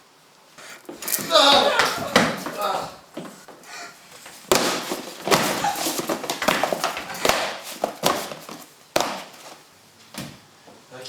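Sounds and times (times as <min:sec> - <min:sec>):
stomping thumps: 0:00.7 - 0:03.6, 0:04.2 - 0:09.6
person shrieking: 0:01.0 - 0:03.1.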